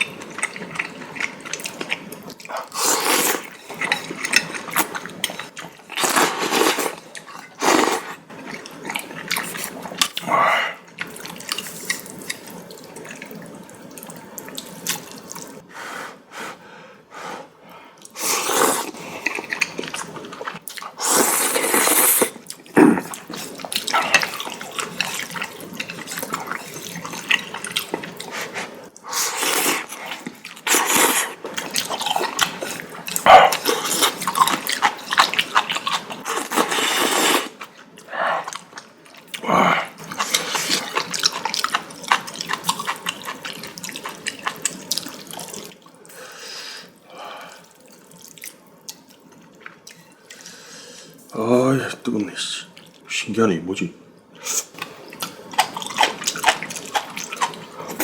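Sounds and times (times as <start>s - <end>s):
person slurping noodles: 2.6s - 3.6s, 7.6s - 8.7s, 18.2s - 35.2s, 35.9s - 38.6s
wet chewing: 29.4s - 45.9s, 54.5s - 58.0s.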